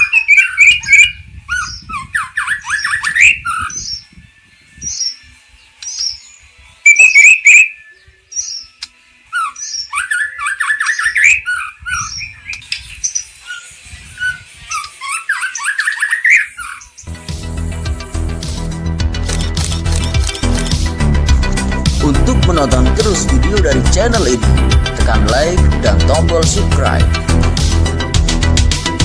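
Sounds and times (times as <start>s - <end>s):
songbird singing: 0.0s - 17.2s.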